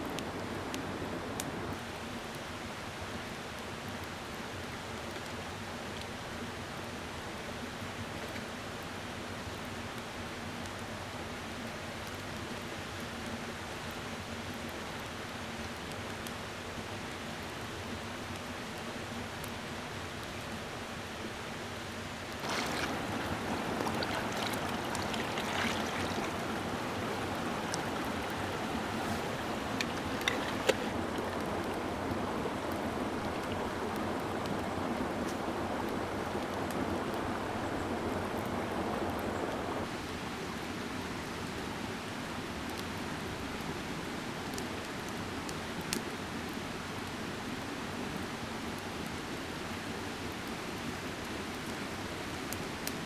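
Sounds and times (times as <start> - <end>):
mountain stream rushing: 0.0 - 3.5, 22.1 - 42.4.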